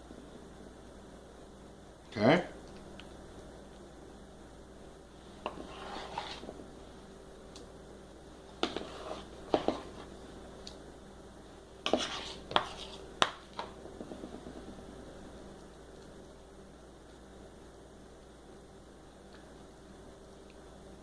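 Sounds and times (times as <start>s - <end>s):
spoon scraping against dishes: 5.4s - 6.4s, 8.6s - 10.1s, 11.8s - 13.0s.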